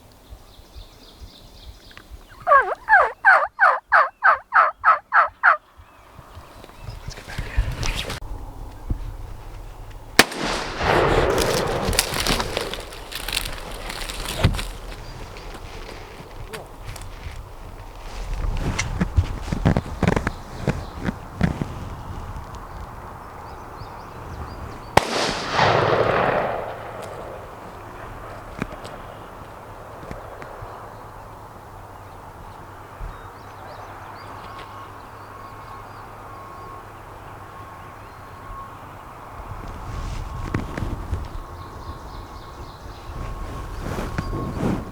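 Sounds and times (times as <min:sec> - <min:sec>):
faint high bird calls: 0:00.4 - 0:08.9
rustling and crackling brush: 0:08.8 - 0:22.9, 0:39.7 - 0:41.5, 0:42.6 - 0:44.9.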